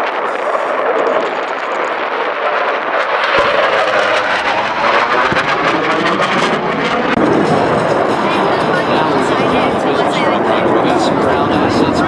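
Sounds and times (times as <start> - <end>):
rapid crackling gunfire: 0.0 - 9.2
military aircraft roar: 0.0 - 12.0
deep explosion booms: 3.2 - 9.9.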